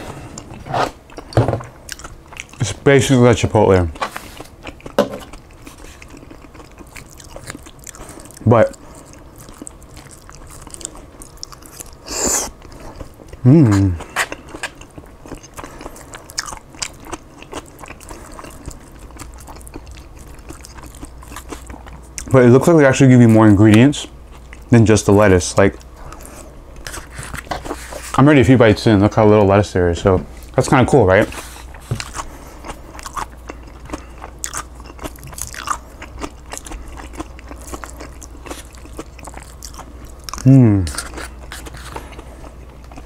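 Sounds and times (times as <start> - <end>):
crunchy chewing: 3.9 - 22.3, 31.2 - 43.0.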